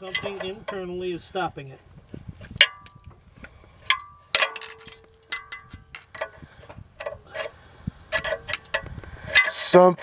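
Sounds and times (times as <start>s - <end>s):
metal tools clinking on metal: 0.0s - 0.9s, 3.9s - 6.4s, 7.0s - 10.0s.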